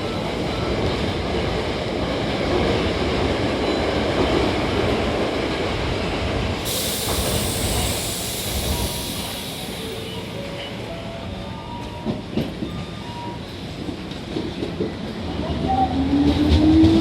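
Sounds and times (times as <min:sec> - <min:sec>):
train rumbling on rails: 0:00.0 - 0:17.0
high hiss: 0:06.7 - 0:10.4.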